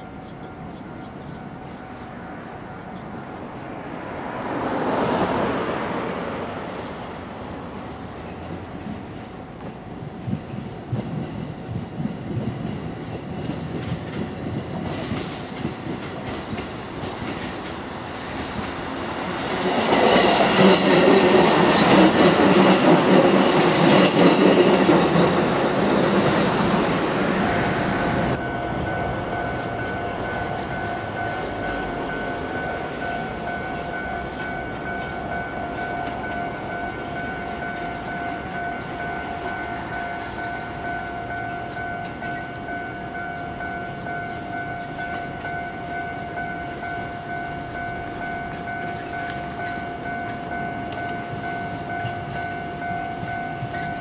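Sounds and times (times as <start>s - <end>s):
level crossing bell ringing: 28.0s - 54.0s.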